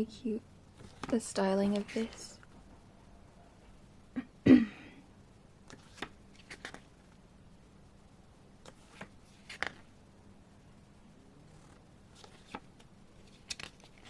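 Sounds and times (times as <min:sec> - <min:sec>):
paper pages rustling: 0:00.8 - 0:02.5, 0:05.7 - 0:06.9, 0:08.6 - 0:09.9, 0:11.6 - 0:14.0.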